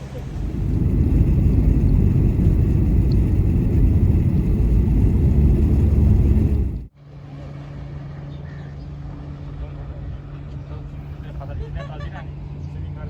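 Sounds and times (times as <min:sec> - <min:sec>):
car rumbling in motion: 0:00.0 - 0:06.9
quiet steady hum: 0:00.0 - 0:06.9.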